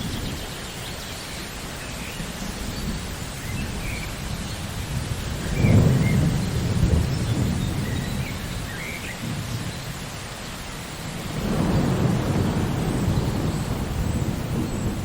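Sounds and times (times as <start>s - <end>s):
rain falling: 0.0s - 15.0s
rolling thunder: 3.7s - 10.1s, 11.1s - 15.0s.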